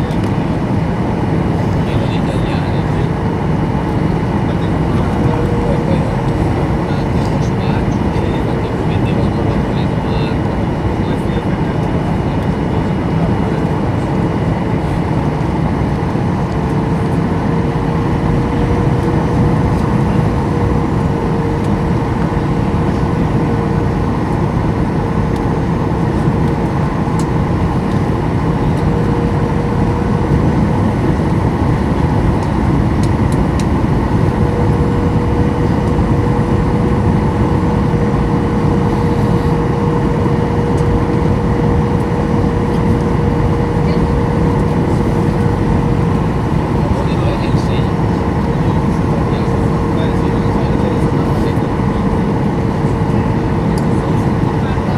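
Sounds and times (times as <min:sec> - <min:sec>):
airplane cabin airflow rush: 0:00.0 - 0:54.9
constant tone: 0:00.0 - 0:54.9
jet engines humming: 0:00.0 - 0:54.9.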